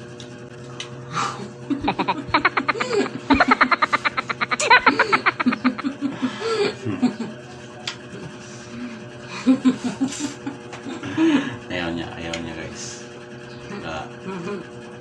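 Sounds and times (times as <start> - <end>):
steady low hum: 0.0 - 15.0
people laughing: 1.7 - 11.6.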